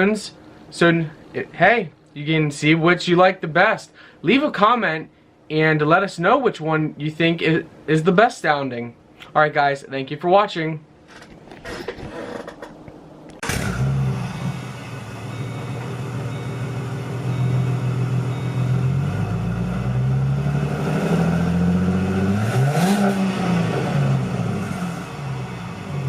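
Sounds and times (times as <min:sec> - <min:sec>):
car engine idling and revving: 0:13.4 - 0:26.0.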